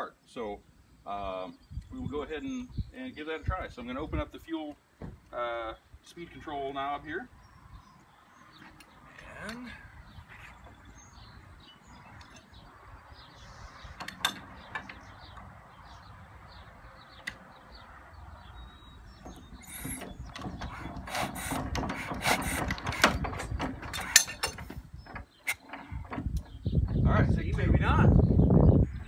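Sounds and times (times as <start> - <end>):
mechanical clatter of crank: 19.3 - 26.7
hand crank clicks: 19.6 - 26.5.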